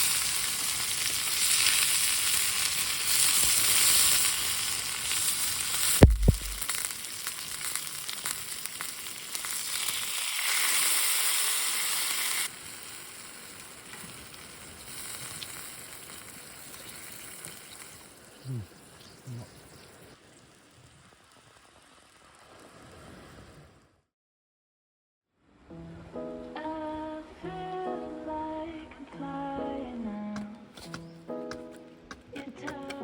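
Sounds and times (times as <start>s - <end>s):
food sizzling in frying pan: 0.0s - 20.1s
knock: 6.0s - 6.6s.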